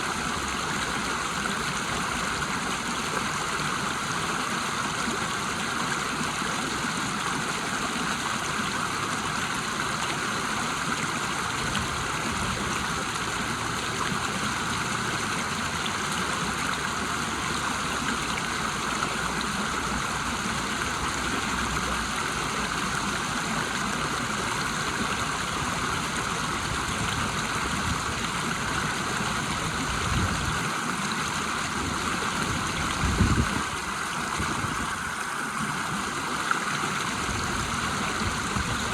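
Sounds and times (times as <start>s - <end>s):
river water rushing over waterfall: 0.0s - 38.9s.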